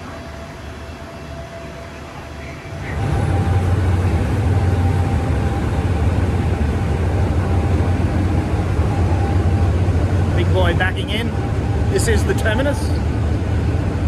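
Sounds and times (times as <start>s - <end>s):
train engine humming: 0.0s - 14.0s.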